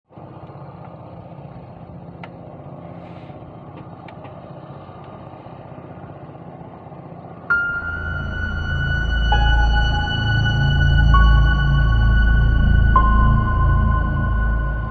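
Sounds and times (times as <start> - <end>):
small engine idling: 0.1 - 12.0.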